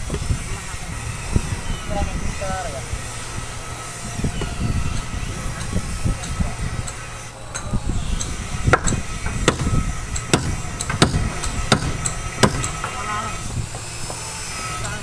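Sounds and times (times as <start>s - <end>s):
hammer striking timber: 8.2s - 13.0s.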